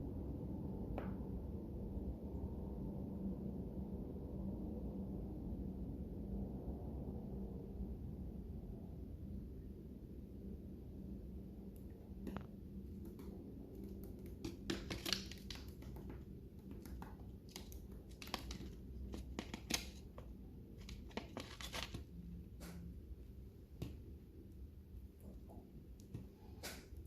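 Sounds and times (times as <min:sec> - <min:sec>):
birds cracking seeds: 0:13.0 - 0:20.2.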